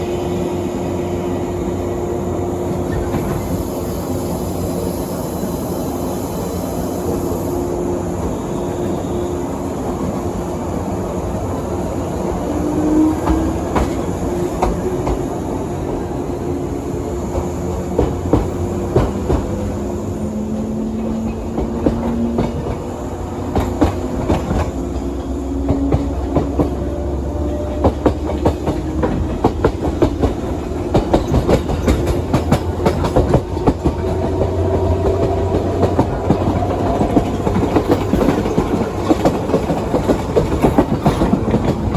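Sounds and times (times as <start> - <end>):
electric train rumble and motor hum: 0.0 - 41.9
wheels clicking over rail joints: 20.9 - 41.9.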